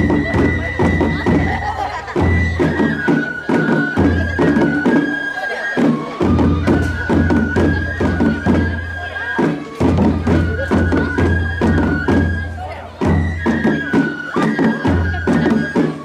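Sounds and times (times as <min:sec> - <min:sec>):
drum strikes: 0:00.0 - 0:05.1, 0:09.5 - 0:13.9
flute high notes: 0:00.0 - 0:16.0.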